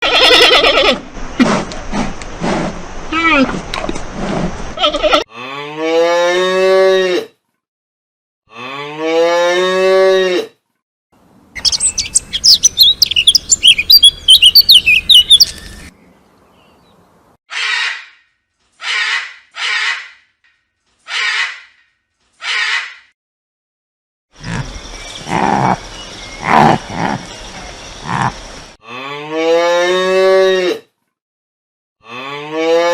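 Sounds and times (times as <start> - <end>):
cow mooing: 5.1 - 7.3, 8.5 - 10.5, 28.1 - 30.8, 32.0 - 32.9
small birds chirping: 11.6 - 17.3, 24.4 - 28.8
hoarse animal calls: 24.4 - 27.4, 28.0 - 28.4.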